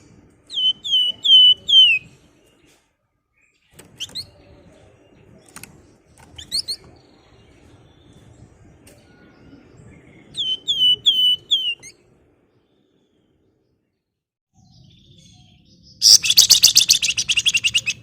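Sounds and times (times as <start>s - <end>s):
songbird whistled calls: 0.5s - 2.2s, 9.0s - 12.0s, 14.6s - 18.0s.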